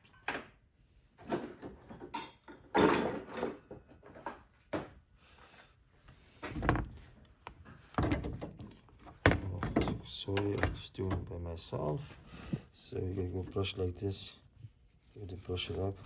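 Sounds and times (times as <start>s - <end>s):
metal parts knocking and clunking: 7.9s - 11.4s
metal scraping: 14.9s - 16.0s.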